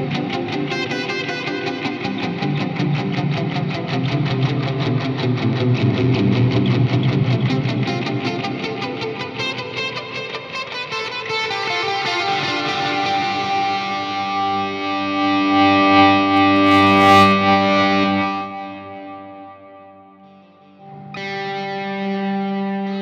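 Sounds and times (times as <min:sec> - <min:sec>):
electric guitar chords with reverb: 0:00.0 - 0:23.0.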